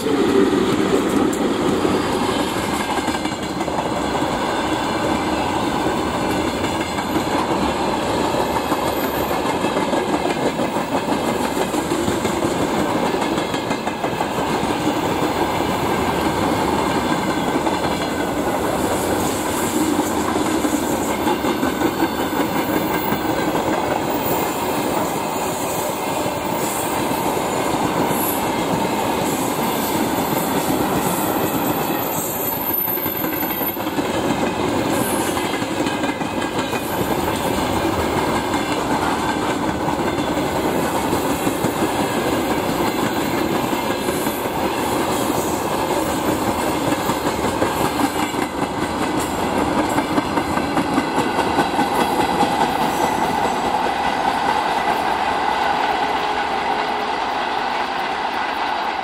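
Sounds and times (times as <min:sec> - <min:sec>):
train wheels clattering over rail joints: 0:32.9 - 0:55.1.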